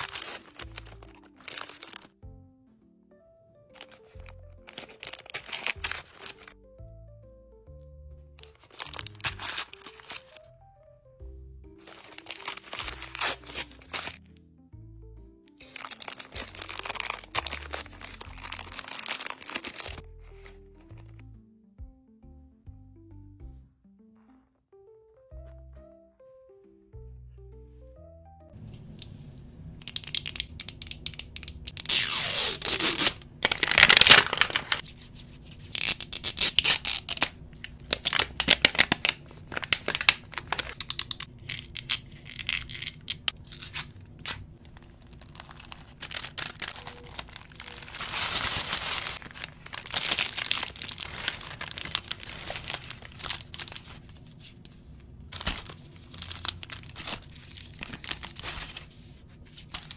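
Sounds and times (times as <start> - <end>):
plastic wrapping crinkling: 0.0 - 2.2, 3.7 - 6.6, 8.4 - 10.4, 11.8 - 14.2, 15.6 - 21.2, 29.8 - 59.9
wrapping tearing: 0.0 - 2.2, 3.7 - 6.6, 8.4 - 10.4, 11.8 - 14.2, 15.6 - 21.2, 29.8 - 59.9.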